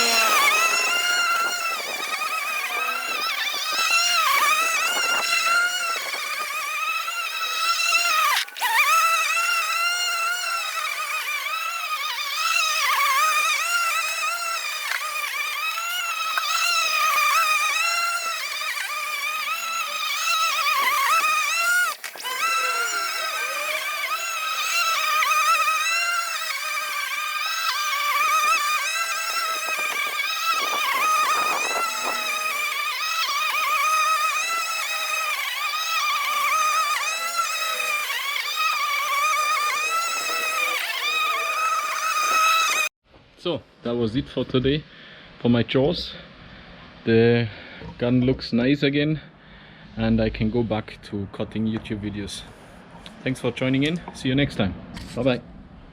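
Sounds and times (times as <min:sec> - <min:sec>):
electric lawn mower whining: 0:00.0 - 0:43.0.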